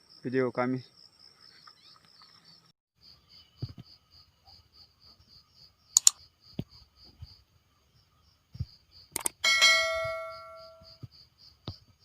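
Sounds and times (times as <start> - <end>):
insect chirping: 0.0 - 12.0
clicks and knocks: 9.2 - 10.2.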